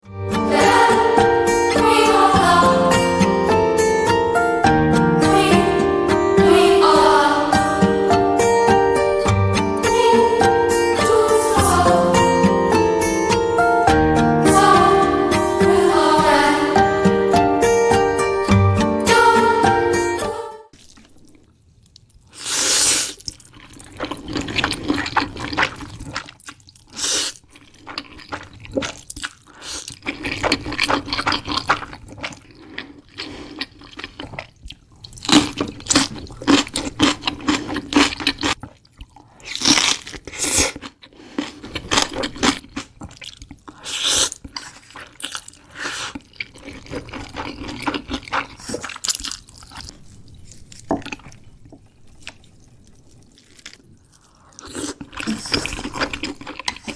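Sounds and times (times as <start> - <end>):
wet chewing and crunching: 20.7 - 56.9.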